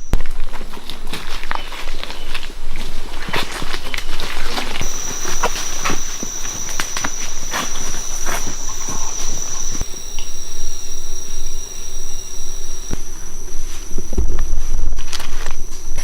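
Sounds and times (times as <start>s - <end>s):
insects droning high whine: 4.8s - 16.0s.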